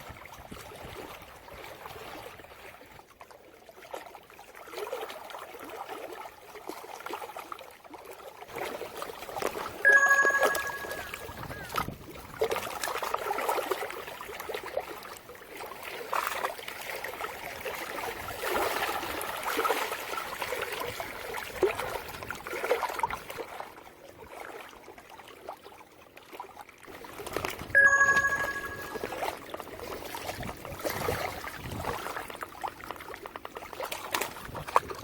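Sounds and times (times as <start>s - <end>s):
water splashing and trickling: 0.0s - 35.0s
short pitched tone: 9.9s - 11.8s, 27.8s - 29.3s.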